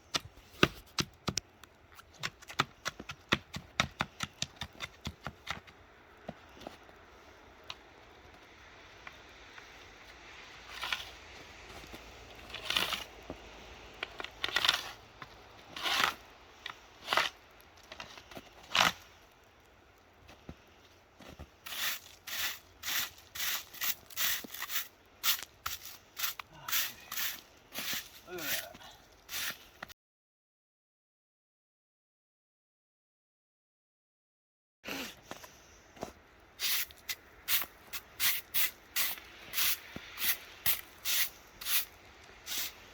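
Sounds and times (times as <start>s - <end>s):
rough scrape on ice: 10.6s - 11.2s, 12.4s - 13.2s, 14.3s - 15.0s, 15.7s - 19.2s, 21.6s - 29.8s, 36.6s - 42.9s
steel chisel striking ice: 15.8s - 16.2s, 21.7s - 28.7s, 36.7s - 42.8s.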